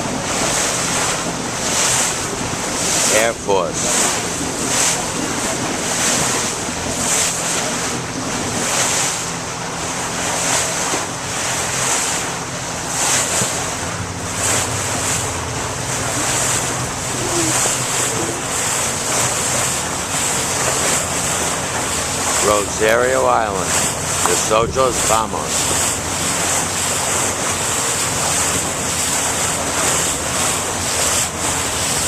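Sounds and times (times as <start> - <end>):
hull splashing through waves: 0.0 - 32.0
motorboat engine hum: 0.0 - 32.0
rushing water: 0.0 - 32.0
wind buffeting microphone: 12.2 - 32.0.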